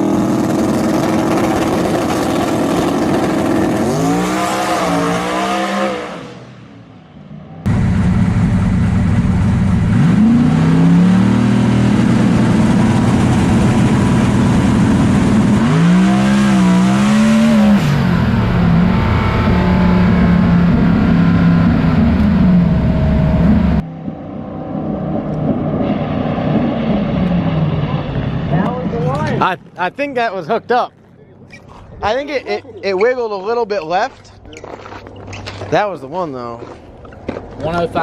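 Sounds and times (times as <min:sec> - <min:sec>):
race car engine at high revs: 0:00.0 - 0:06.7, 0:07.7 - 0:29.3.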